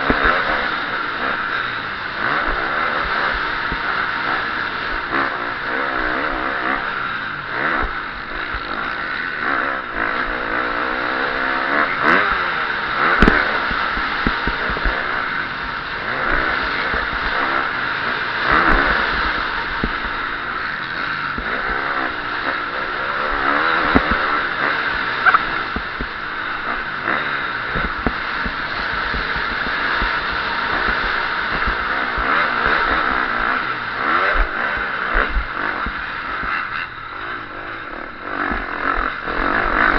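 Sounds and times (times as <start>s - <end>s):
motocross bike engine revving: 0.0s - 39.9s
knocks and clatters from bike: 7.6s - 39.9s.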